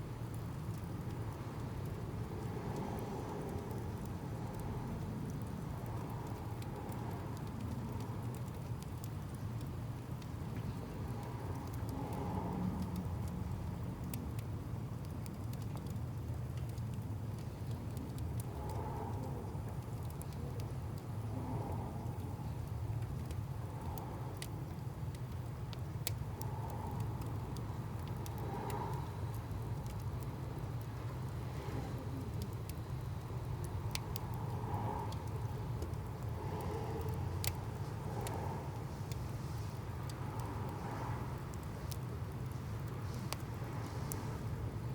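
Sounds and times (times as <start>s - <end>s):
bonfire crackling: 0.0s - 44.9s
fire low rumble: 0.0s - 44.9s.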